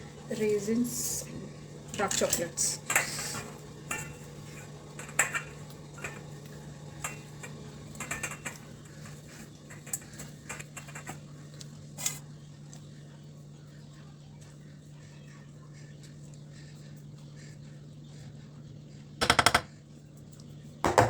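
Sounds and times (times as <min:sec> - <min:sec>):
steady low hum: 0:00.0 - 0:21.0
spoon tapping against dishes: 0:02.8 - 0:11.2, 0:19.2 - 0:19.8.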